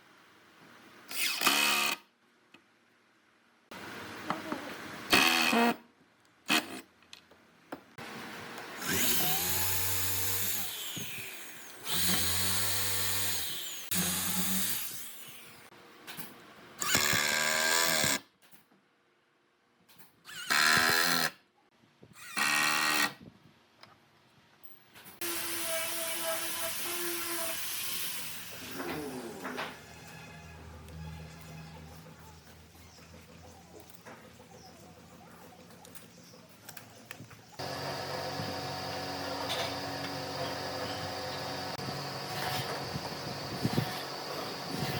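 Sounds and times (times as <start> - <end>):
electric power tools running: 8.8 - 15.7, 25.2 - 29.6, 37.6 - 44.9.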